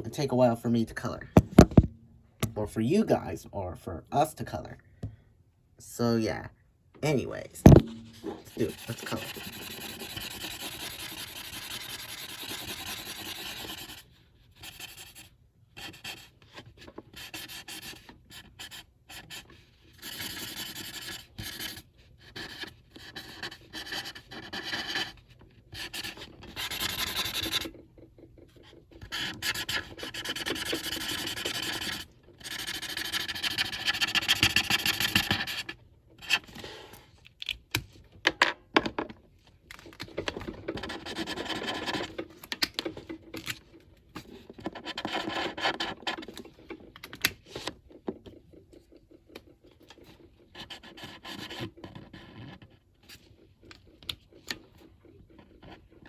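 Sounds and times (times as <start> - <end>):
pencil scratching on paper: 7.7 - 27.8, 28.4 - 36.4, 40.7 - 42.2, 44.2 - 46.6, 48.6 - 52.6.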